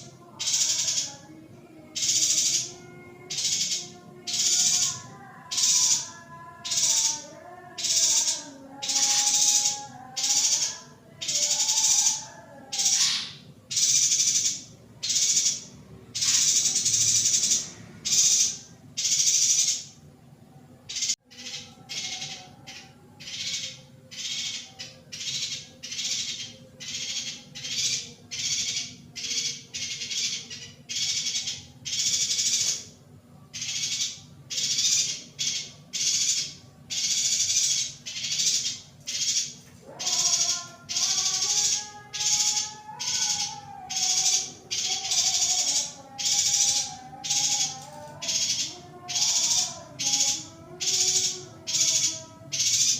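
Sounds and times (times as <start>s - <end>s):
bird rasping calls: 2.0s - 19.9s, 20.9s - 33.0s.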